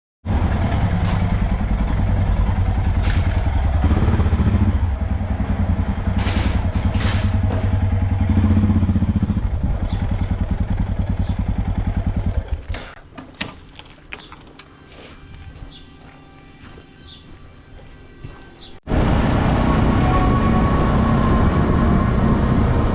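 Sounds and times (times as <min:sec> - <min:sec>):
motorcycle engine running: 0:00.3 - 0:12.9.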